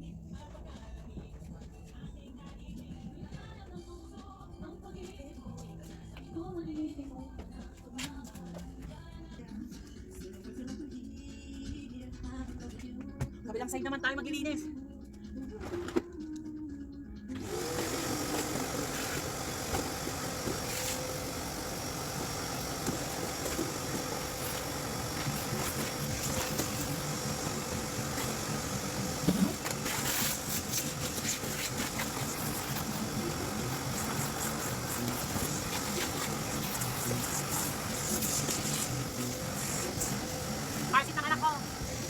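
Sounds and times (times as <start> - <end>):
motor humming: 17.3 - 42.0.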